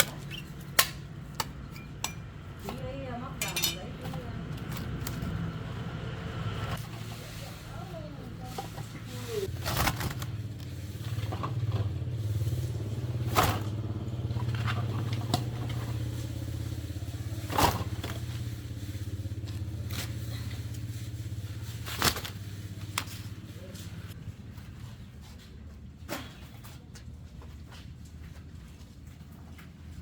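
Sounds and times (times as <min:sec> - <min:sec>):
small engine running: 0:09.4 - 0:24.0.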